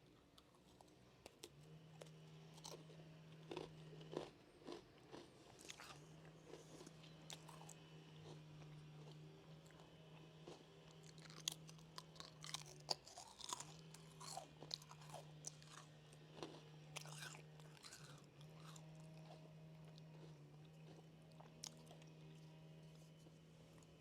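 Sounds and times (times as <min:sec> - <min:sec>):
person chewing crunchy snack: 0:00.4 - 0:22.4.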